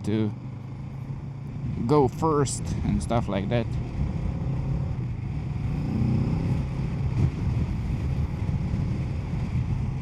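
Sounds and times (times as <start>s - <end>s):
motorcycle engine running: 0.0s - 10.0s
wind noise: 3.5s - 10.0s.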